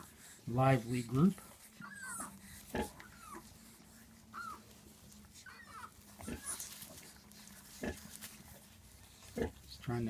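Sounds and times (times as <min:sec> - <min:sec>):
piglets squealing: 0:01.7 - 0:04.7, 0:05.4 - 0:07.0.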